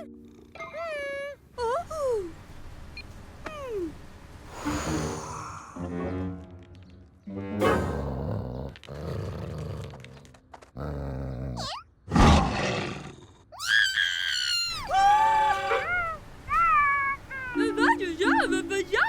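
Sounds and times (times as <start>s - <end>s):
cartoon animal growls and roars: 7.6s - 14.8s.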